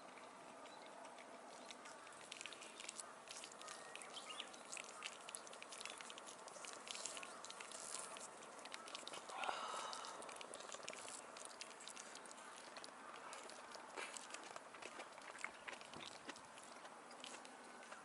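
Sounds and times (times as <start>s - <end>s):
campfire crackling: 1.0s - 18.0s.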